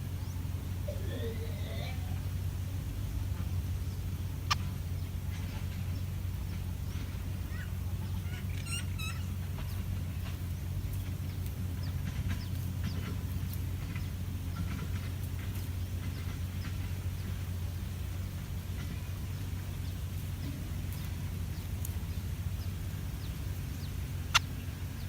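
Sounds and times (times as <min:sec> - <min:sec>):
birds chirping: 0:00.0 - 0:25.0
steady low rumble: 0:00.0 - 0:25.0
short hooked bird calls: 0:07.5 - 0:09.4, 0:24.2 - 0:25.0.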